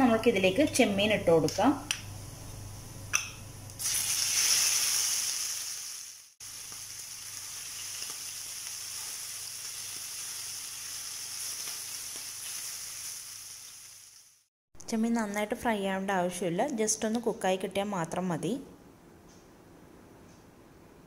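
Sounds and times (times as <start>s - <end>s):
prawns sizzling in hot oil: 3.8s - 14.5s.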